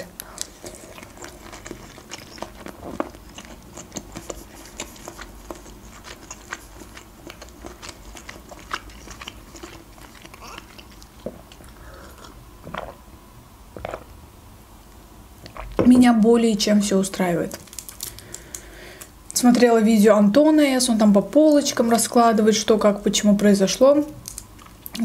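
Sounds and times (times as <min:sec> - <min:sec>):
chewing with wet clicks and crunches: 0:00.2 - 0:13.0, 0:24.1 - 0:25.0
person gulping a drink: 0:10.1 - 0:13.0, 0:13.8 - 0:14.2.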